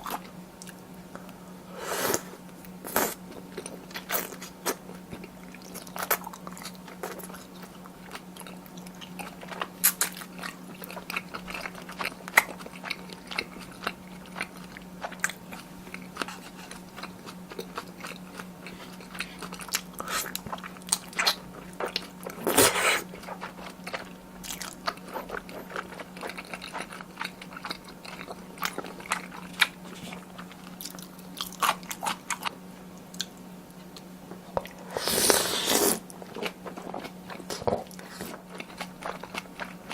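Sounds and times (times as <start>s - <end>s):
steady low hum: 0.0s - 39.9s
chewing and mouth sounds: 2.8s - 39.9s.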